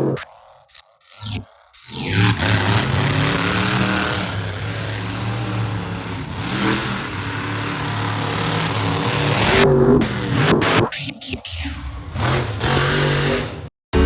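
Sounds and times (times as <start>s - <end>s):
truck engine running loudly: 2.3s - 10.5s.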